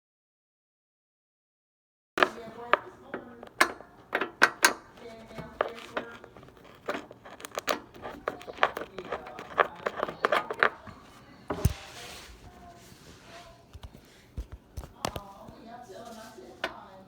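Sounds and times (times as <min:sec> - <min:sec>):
hard objects clicking and knocking: 0:02.2 - 0:12.7, 0:13.6 - 0:15.6.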